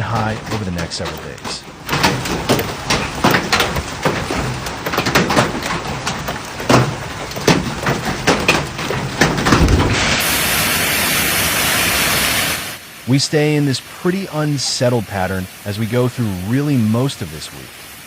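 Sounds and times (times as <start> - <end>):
hailstones striking hard surface: 0.0 - 12.8
heavy rain hiss: 0.0 - 18.0.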